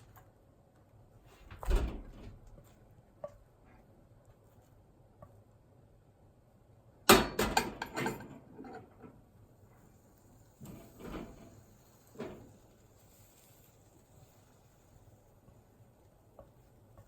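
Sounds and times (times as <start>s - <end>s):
kitchenware knocking and clattering: 7.1s - 9.0s.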